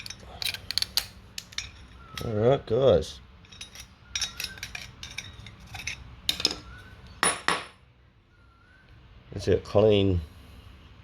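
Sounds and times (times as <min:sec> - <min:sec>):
metal parts clinking: 0:00.0 - 0:02.5, 0:03.4 - 0:06.7.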